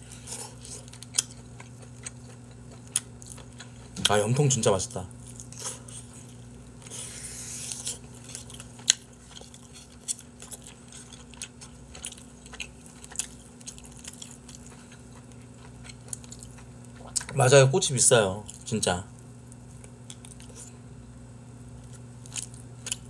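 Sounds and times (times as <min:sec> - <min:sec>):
biting and chewing food: 0:00.1 - 0:17.4, 0:19.4 - 0:20.8, 0:21.7 - 0:23.0.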